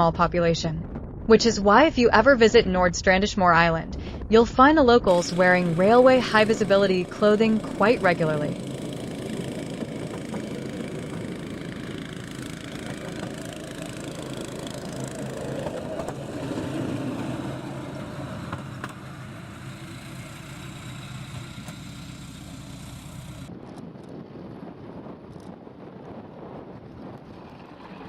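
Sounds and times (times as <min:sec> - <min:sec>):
small diesel engine running: 0:05.1 - 0:23.5.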